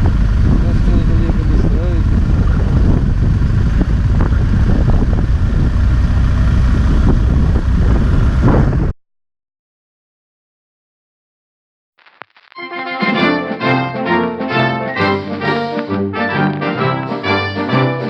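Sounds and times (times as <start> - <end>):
motorcycle engine drone: 0.0 - 9.0
wind rumble on microphone: 0.0 - 9.0.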